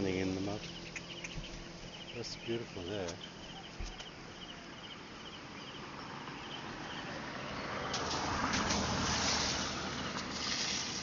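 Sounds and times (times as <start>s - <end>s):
insect chirping: 0.0s - 11.0s
vehicle passing by: 5.2s - 11.0s.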